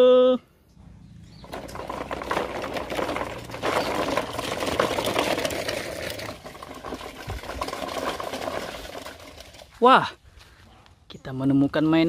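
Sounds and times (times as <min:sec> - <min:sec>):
toy wheels crunching on dirt: 0:01.2 - 0:10.7
plastic toy body rattling: 0:01.4 - 0:09.8.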